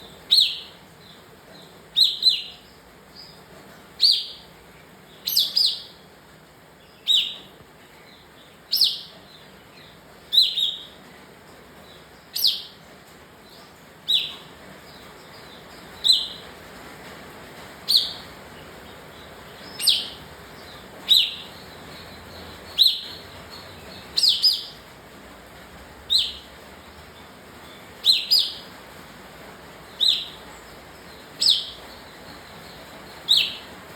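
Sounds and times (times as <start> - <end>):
bulbul giving sharp calls: 8.7 - 9.2, 10.3 - 11.0, 19.0 - 24.8, 26.1 - 26.6, 28.0 - 28.7, 29.9 - 30.5, 31.2 - 33.8.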